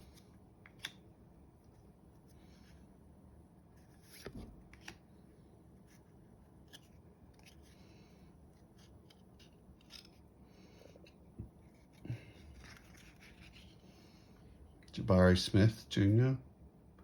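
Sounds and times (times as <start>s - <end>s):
trading cards rustling: 5.8s - 14.0s.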